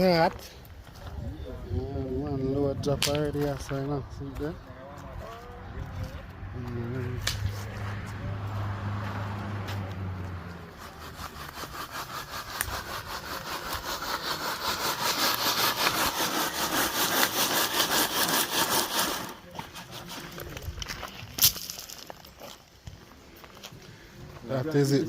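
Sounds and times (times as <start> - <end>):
hand saw cutting wood: 10.4 - 20.6.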